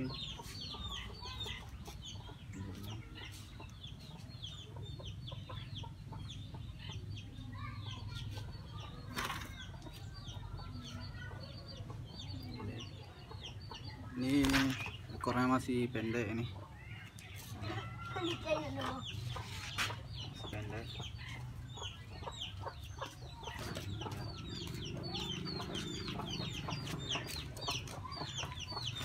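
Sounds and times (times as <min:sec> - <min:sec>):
young birds cheeping: 0:00.0 - 0:29.0.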